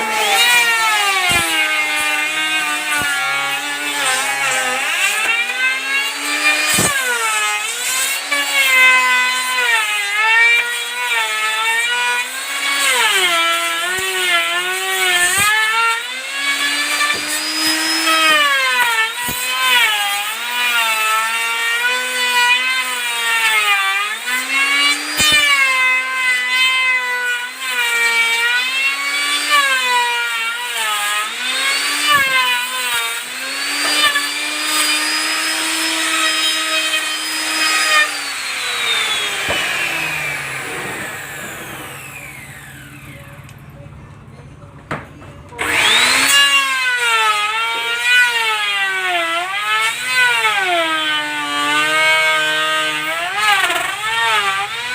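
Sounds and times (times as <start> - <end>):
power tool cutting wood: 0.0 - 43.8, 45.5 - 54.9.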